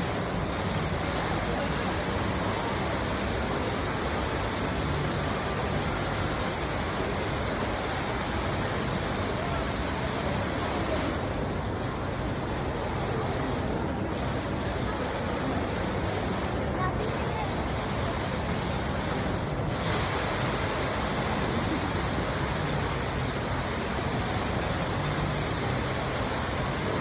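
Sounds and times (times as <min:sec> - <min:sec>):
indoor waterfall rushing: 0:17.1 - 0:27.0.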